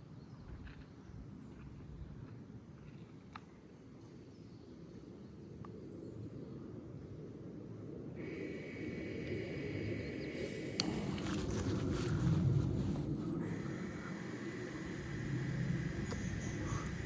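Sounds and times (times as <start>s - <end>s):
faint outdoor background rumble: 0.2s - 17.0s
soft isolated clicks: 10.4s - 11.7s.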